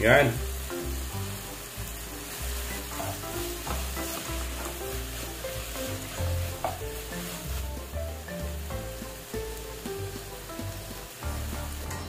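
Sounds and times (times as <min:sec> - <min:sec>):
onions sizzling in oil: 0:00.0 - 0:12.0
spatula scraping a pan: 0:02.2 - 0:08.0.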